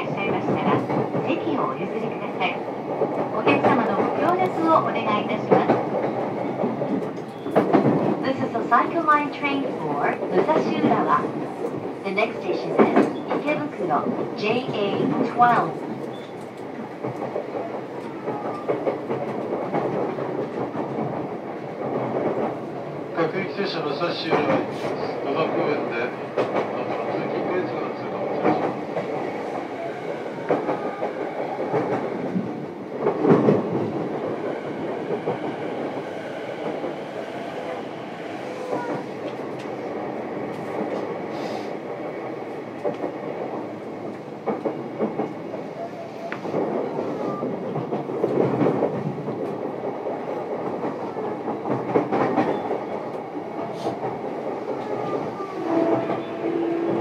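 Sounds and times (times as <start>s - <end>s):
train wheels rumbling on rail: 0.0s - 57.0s
thumps from the track: 2.9s - 8.6s, 28.3s - 37.1s, 46.3s - 57.0s.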